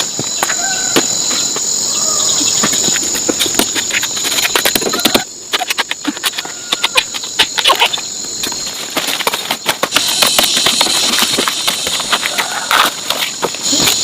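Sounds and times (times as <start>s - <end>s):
insect chorus droning: 0.0s - 14.0s.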